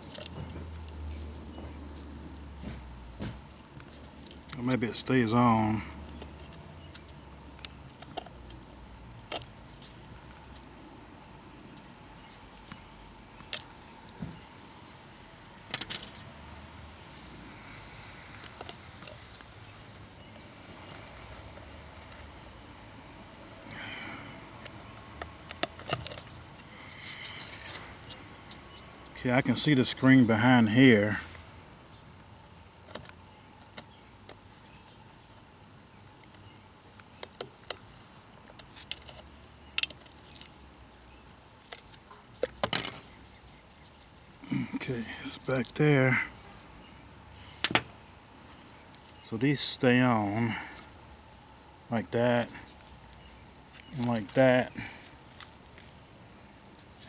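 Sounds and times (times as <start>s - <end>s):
small metal parts rattling: 15.6s - 16.3s, 18.5s - 22.7s, 23.6s - 28.2s, 39.8s - 43.1s.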